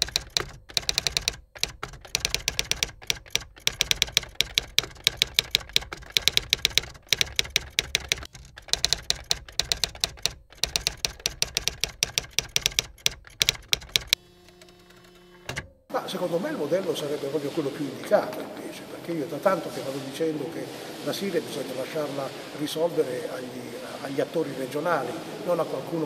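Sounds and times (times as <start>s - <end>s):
typewriter key strikes: 0.0s - 15.8s.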